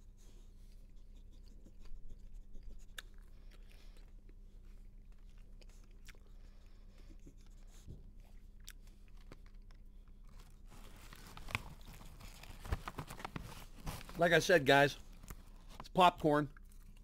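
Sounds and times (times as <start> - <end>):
popcorn being chewed: 0.8 - 14.3, 15.0 - 17.0
plastic bag rustling: 10.3 - 15.8.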